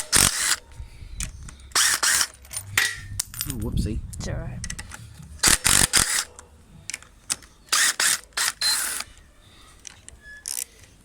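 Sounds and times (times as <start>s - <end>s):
ratchet wrench clicking: 1.7s - 3.0s.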